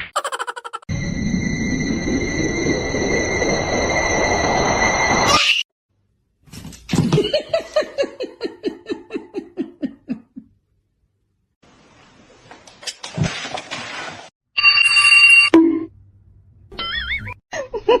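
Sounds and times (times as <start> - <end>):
person laughing: 0.2 - 0.9, 7.0 - 10.5, 16.8 - 18.0.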